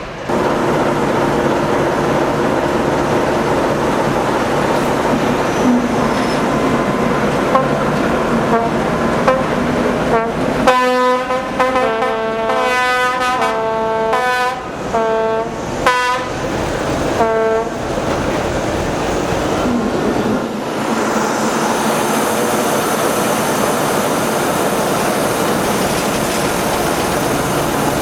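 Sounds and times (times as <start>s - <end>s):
diesel locomotive rumbling: 0.0s - 28.0s
brass-like horn notes: 10.1s - 16.3s.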